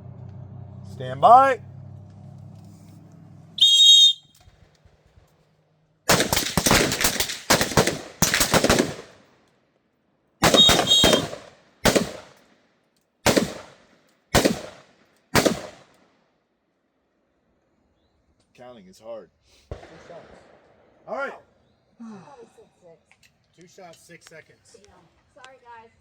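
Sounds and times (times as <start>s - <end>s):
rifle shots with echo: 6.1s - 9.4s, 10.4s - 12.6s, 13.2s - 16.0s, 19.7s - 21.0s.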